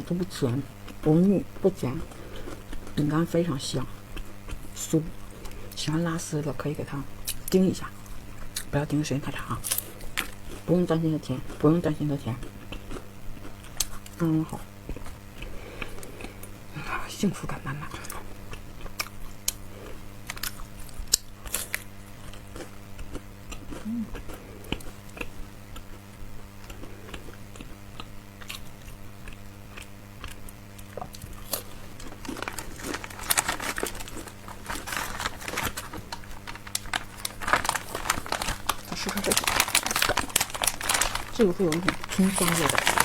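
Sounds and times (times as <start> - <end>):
chewing a crisp biscuit: 11.4 - 16.7, 17.9 - 43.0
crackling and crinkling: 24.7 - 43.0.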